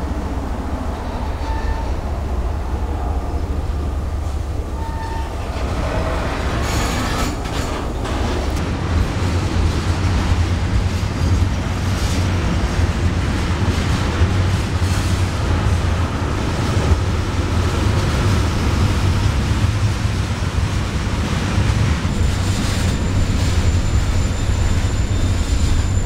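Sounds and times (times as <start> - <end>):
freight train rumbling past: 0.0 - 26.0
train wheel squeal: 1.0 - 2.2, 4.7 - 8.6, 22.0 - 26.0
train wheel clatter: 4.2 - 26.0.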